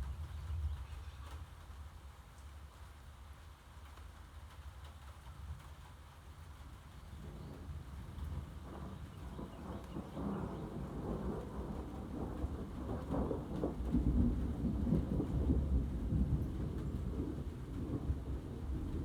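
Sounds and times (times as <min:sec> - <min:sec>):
thunder rumbling: 0:07.2 - 0:19.0.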